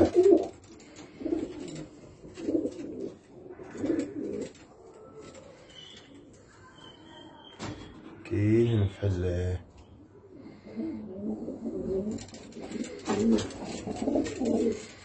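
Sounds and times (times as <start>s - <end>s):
pigeons cooing: 0.0s - 7.1s, 9.8s - 15.0s.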